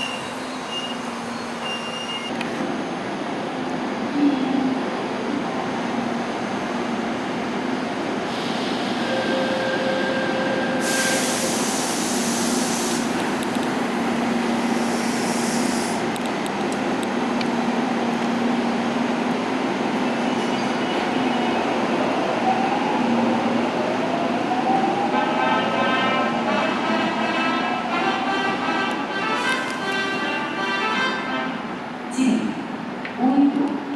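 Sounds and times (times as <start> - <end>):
electric train humming: 2.7 - 32.1
loud hiss: 10.8 - 13.4, 14.5 - 16.0.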